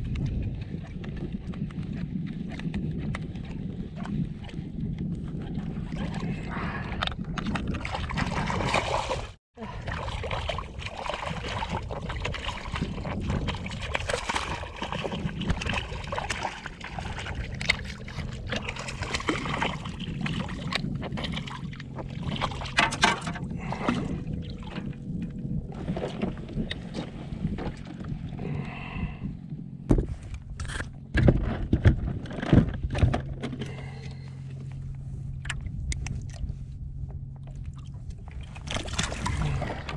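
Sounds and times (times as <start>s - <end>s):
water lapping around kayak: 0.0s - 39.9s.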